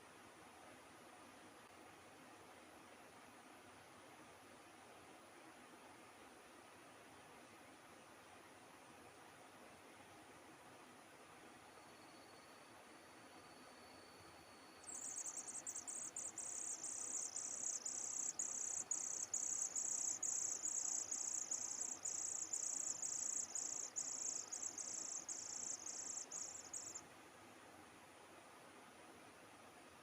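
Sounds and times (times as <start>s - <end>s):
insect chirping in buzzing pulses: 13.4s - 27.0s.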